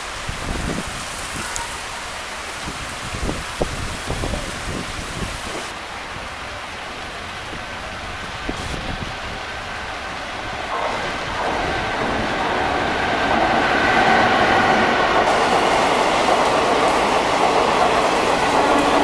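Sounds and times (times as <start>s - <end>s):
rain hiss: 0.0s - 19.0s
train wheels clattering on rails: 10.4s - 19.0s.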